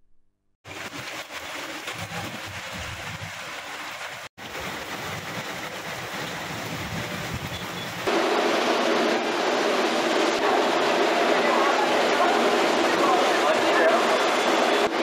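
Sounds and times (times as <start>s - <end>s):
heavy rain pouring: 0.6s - 15.0s
gusty wind rumbling: 4.6s - 13.3s.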